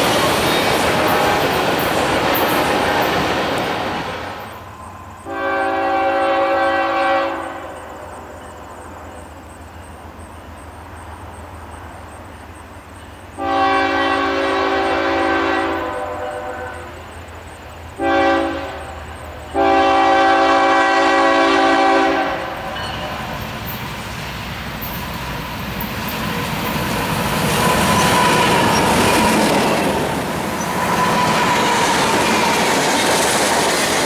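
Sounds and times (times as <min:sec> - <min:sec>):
train rumble: 0:00.0 - 0:34.0
locomotive air horn blasts: 0:00.9 - 0:01.6, 0:05.3 - 0:08.0, 0:13.4 - 0:17.0, 0:18.0 - 0:23.3.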